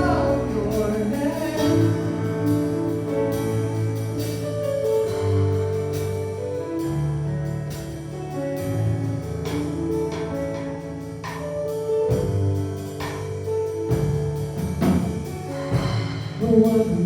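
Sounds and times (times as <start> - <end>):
person singing: 0.0 - 2.2
sustained keyboard chords: 0.0 - 16.9
bass: 0.0 - 17.0
drum kit steady beat: 0.0 - 17.0.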